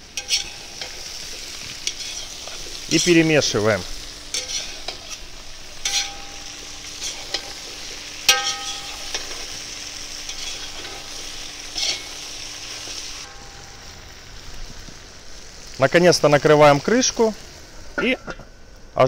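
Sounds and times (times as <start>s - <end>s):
food sizzling in a pan: 0.0s - 19.0s
metal spoon scraping pan: 0.1s - 3.2s, 4.3s - 9.6s, 10.2s - 12.3s.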